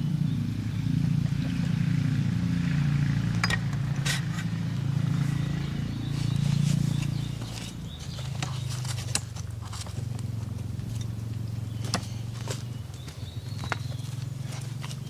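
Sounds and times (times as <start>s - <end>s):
sharp clicks and knocks: 3.2s - 4.6s.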